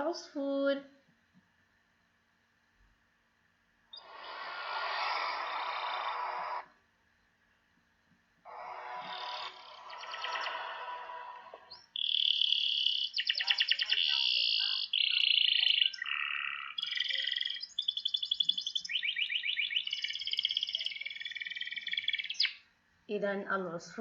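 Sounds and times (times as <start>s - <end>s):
songbird singing with trills: 9.1s - 10.8s, 11.6s - 22.6s.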